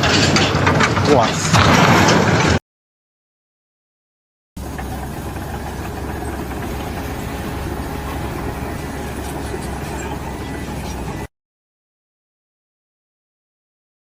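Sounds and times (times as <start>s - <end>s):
engine rumble: 4.6s - 11.3s.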